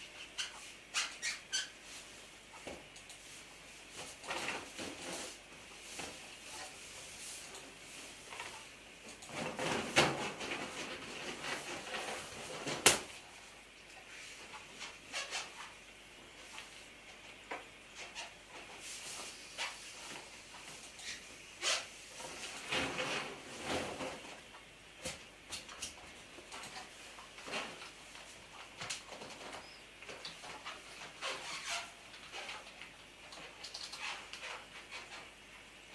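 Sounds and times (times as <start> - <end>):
marker squeaking on balloon: 0.2 - 1.8, 21.0 - 21.9.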